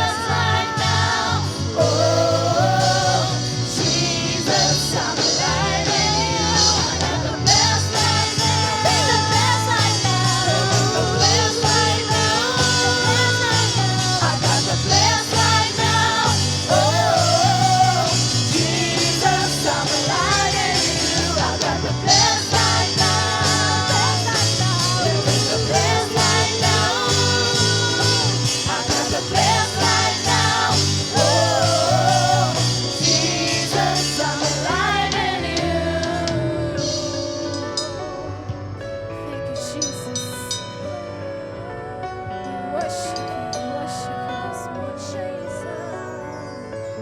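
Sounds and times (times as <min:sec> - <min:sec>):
guitar and bass: 0:00.0 - 0:42.4
person singing: 0:39.8 - 0:46.4.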